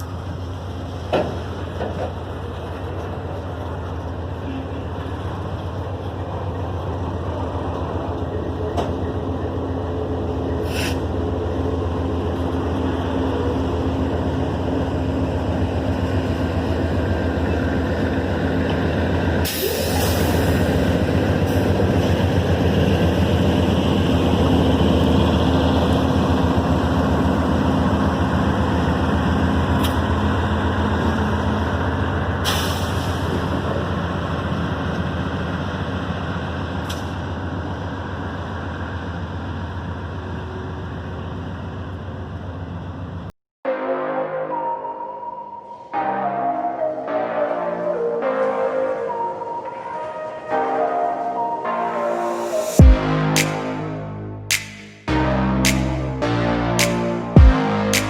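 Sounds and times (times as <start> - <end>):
diesel locomotive engine running: 0.0 - 43.3
short hiss: 10.6 - 11.0.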